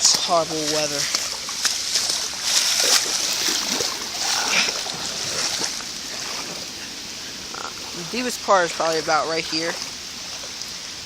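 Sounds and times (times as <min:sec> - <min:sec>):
footsteps splashing through water: 0:00.0 - 0:10.7
steady hiss of water: 0:00.0 - 0:11.0.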